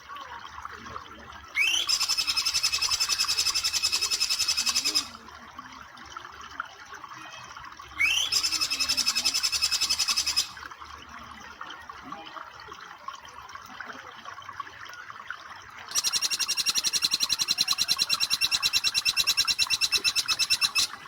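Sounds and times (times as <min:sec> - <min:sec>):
trickle of flowing water: 0:00.0 - 0:21.0
bird calling in fast high notes: 0:01.6 - 0:05.2, 0:08.0 - 0:10.6, 0:15.9 - 0:21.0.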